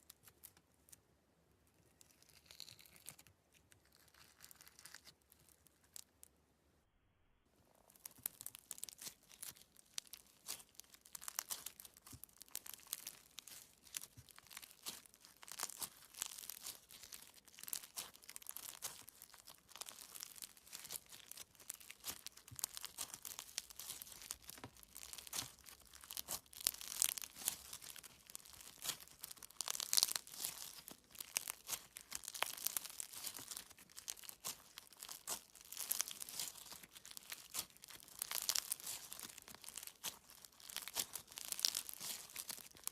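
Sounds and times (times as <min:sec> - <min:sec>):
slime crackling and popping: 0:00.0 - 0:01.0, 0:01.8 - 0:06.3, 0:07.7 - 0:42.9.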